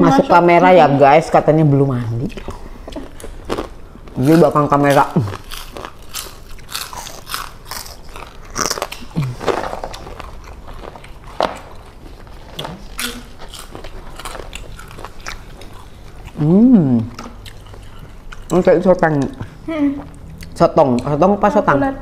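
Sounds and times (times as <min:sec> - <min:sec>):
crunchy biting and chewing: 0:02.2 - 0:18.6.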